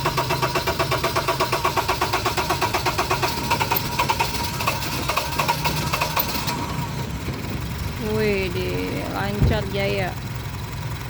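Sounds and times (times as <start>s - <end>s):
car engine starting and idling: 0.0s - 11.0s.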